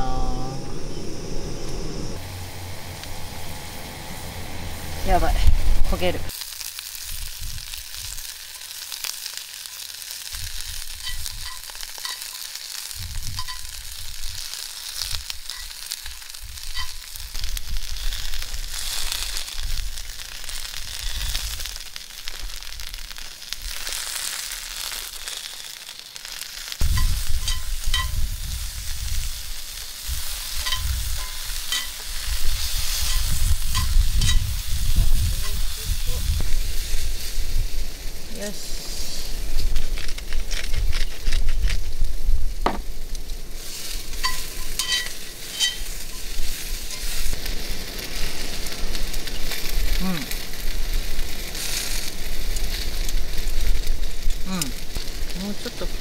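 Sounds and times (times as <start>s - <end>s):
low rumble: 0.0s - 6.3s, 13.0s - 15.3s, 26.8s - 39.9s
food sizzling in oil: 1.0s - 56.0s
metal tongs clicking and scraping: 30.6s - 32.0s, 44.2s - 46.3s.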